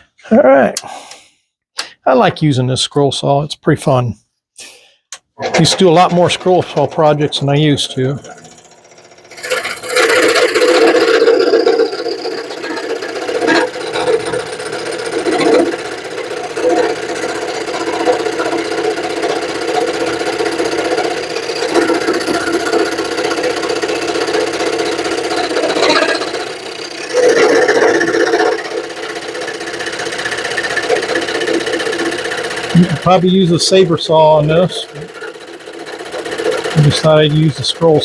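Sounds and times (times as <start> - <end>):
scroll saw cutting wood: 5.2 - 38.0.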